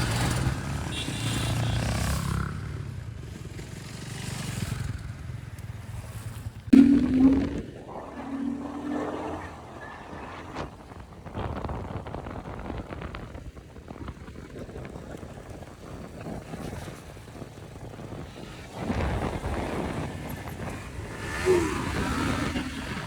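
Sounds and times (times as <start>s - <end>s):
low motorcycle rumble: 6.6s - 18.1s
wind buffeting microphone: 6.7s - 23.0s.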